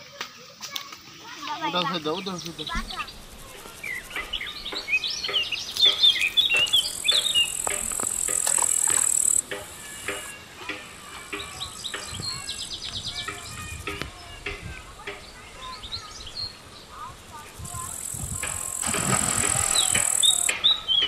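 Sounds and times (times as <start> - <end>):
birds chirping: 1.1 - 21.0
insect buzzing: 2.3 - 10.3, 17.0 - 20.5.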